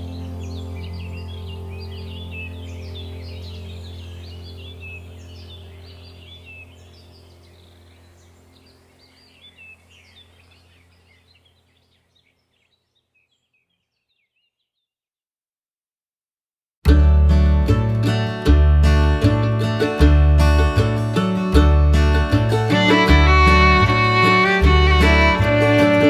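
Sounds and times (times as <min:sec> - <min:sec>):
steady low hum: 0:00.0 - 0:12.1
songbirds chirping and singing: 0:00.0 - 0:14.9, 0:22.2 - 0:26.0.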